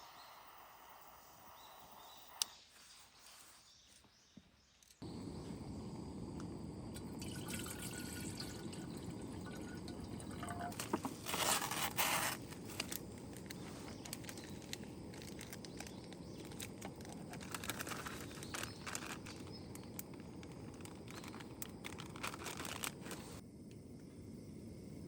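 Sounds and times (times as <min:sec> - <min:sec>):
low hiss: 0:00.0 - 0:02.9
crinkling and rustling: 0:10.2 - 0:23.4.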